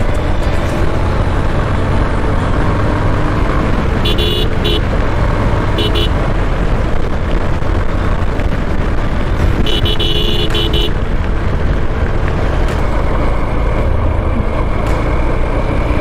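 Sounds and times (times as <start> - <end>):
motorcycle road and engine noise: 0.0 - 16.0
vehicle horn beeps: 4.0 - 4.8, 5.8 - 6.2, 9.6 - 11.0.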